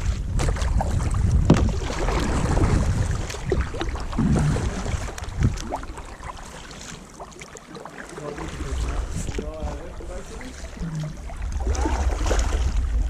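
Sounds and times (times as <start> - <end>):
wind rumbling on microphone: 0.0 - 6.4, 8.3 - 13.0
paddles splashing in water: 0.0 - 13.0.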